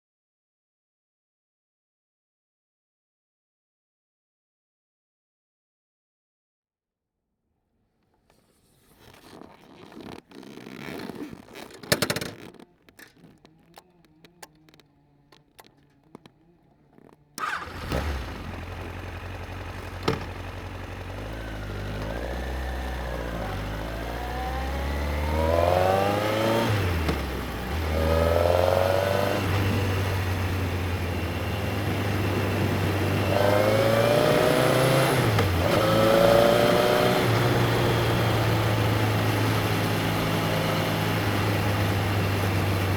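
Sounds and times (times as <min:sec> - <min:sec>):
motorcycle engine idling and revving: 0:09.1 - 0:42.9.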